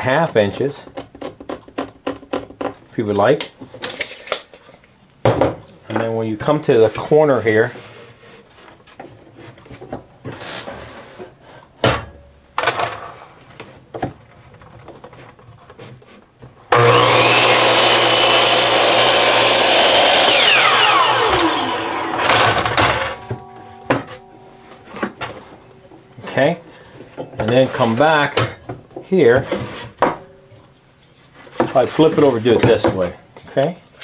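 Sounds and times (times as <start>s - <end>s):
electric saw cutting wood: 16.7s - 24.2s.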